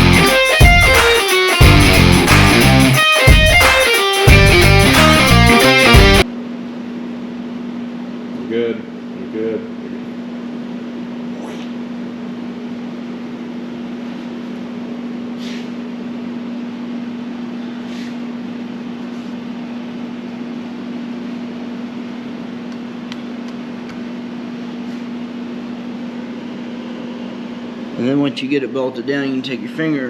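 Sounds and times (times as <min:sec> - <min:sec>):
faint short hisses: 0:15.4 - 0:15.8, 0:17.8 - 0:18.2.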